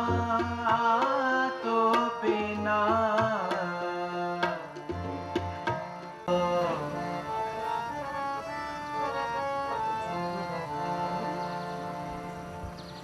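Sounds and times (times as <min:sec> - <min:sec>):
tabla strokes: 0:04.4 - 0:06.3
sustained melodic notes: 0:04.8 - 0:13.0.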